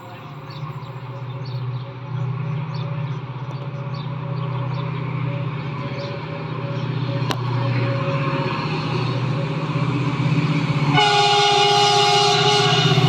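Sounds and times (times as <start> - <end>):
train engine running: 0.0 - 13.0
train horn blast: 10.7 - 13.0.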